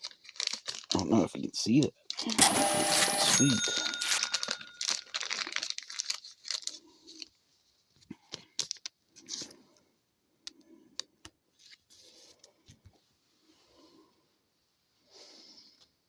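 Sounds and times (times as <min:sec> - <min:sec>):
trading cards clicking and rustling: 0:02.4 - 0:05.7.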